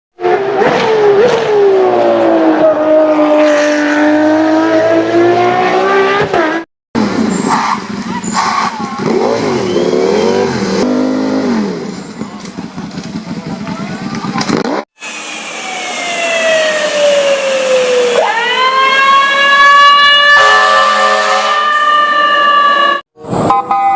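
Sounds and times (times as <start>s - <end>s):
race car engine: 0.2s - 18.4s.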